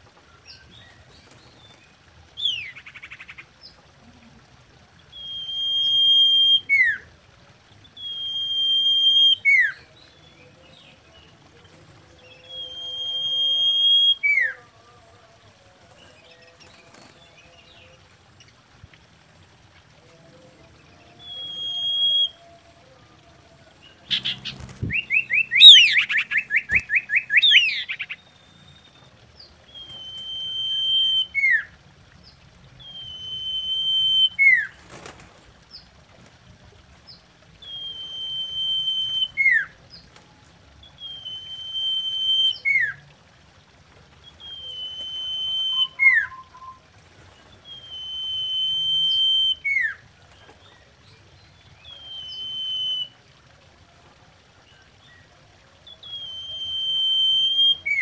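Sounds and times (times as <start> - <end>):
bird whistling: 5.1 - 7.0, 8.0 - 9.8, 12.3 - 14.6, 21.2 - 22.4, 24.1 - 28.9, 29.7 - 31.7, 32.8 - 34.7, 37.6 - 39.7, 41.0 - 43.0, 44.4 - 46.8, 47.6 - 50.0, 51.9 - 53.1, 56.0 - 58.0
bird trill of sweeping notes: 24.0 - 28.9.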